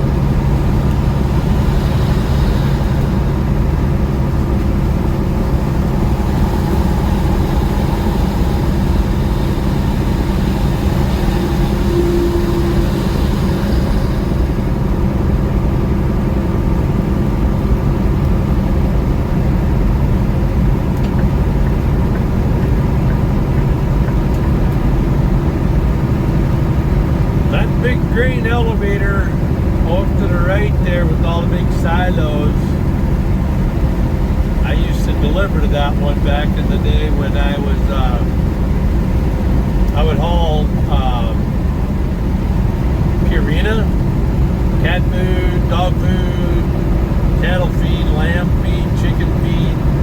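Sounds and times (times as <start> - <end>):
rain hiss: 0.0 - 16.5
diesel truck engine droning: 0.0 - 50.0
road and tyre noise: 0.0 - 50.0.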